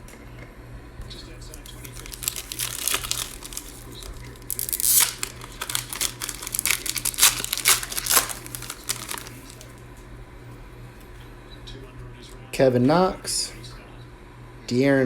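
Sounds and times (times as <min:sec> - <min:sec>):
plastic wrapper tearing and crinkling: 0:01.5 - 0:09.8.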